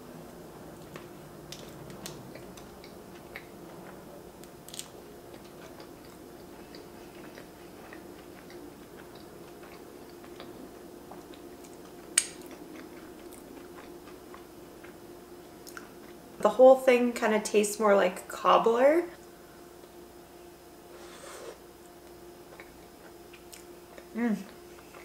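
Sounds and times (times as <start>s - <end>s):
person chewing food: 0.8s - 16.2s, 21.0s - 25.0s.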